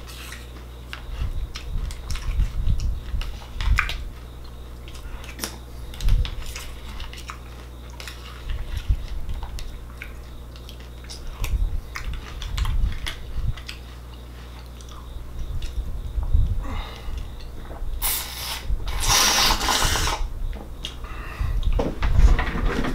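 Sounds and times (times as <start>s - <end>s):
chewing crunchy cereal: 0.0s - 15.8s.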